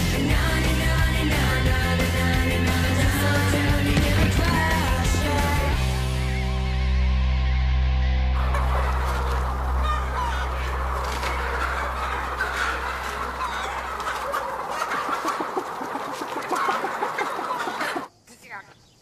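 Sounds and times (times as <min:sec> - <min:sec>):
chickens clucking: 0:00.0 - 0:05.8, 0:08.3 - 0:18.1.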